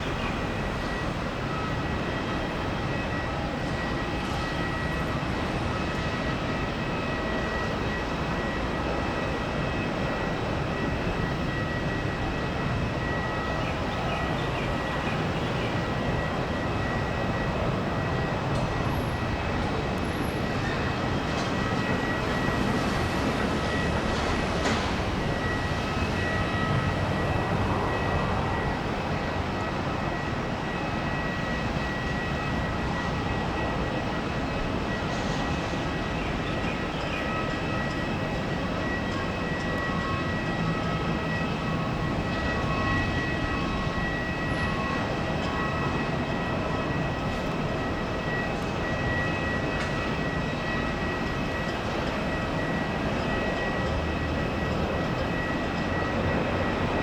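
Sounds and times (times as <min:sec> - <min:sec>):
jet engine high whine: 0:00.0 - 0:57.0
jet engine rumble: 0:00.0 - 0:57.0.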